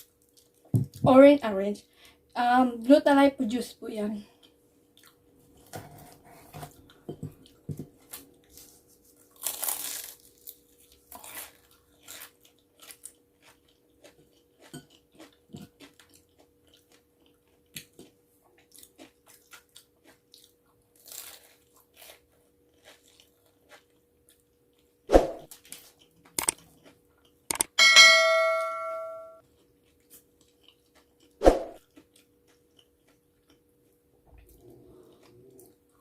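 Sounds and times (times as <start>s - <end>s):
person chewing and biting: 6.8s - 27.7s.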